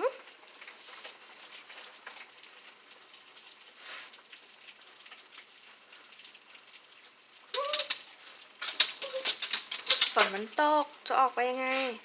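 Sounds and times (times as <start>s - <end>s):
rain falling: 0.0s - 12.0s
drips and taps: 4.1s - 11.5s.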